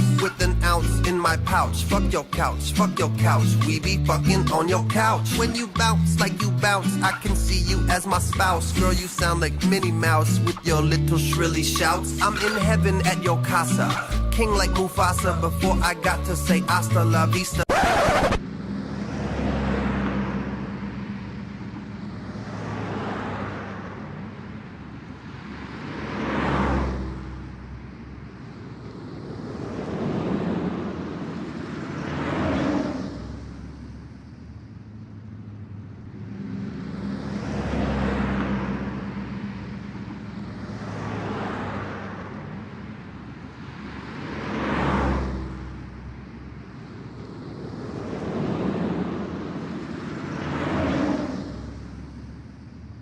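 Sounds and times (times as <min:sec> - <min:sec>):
ocean waves breaking on shore: 0:28.6 - 0:33.5, 0:43.6 - 0:45.7, 0:46.8 - 0:51.9.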